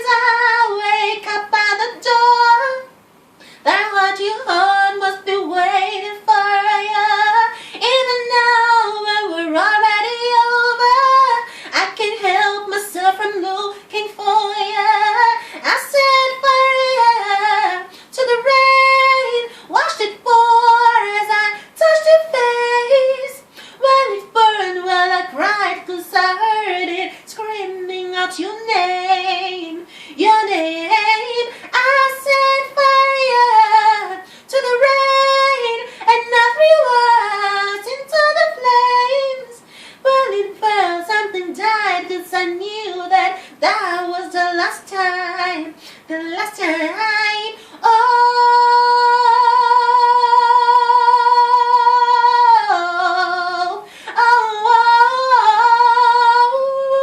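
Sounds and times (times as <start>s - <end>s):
woman singing unaccompanied: 0.0s - 57.0s.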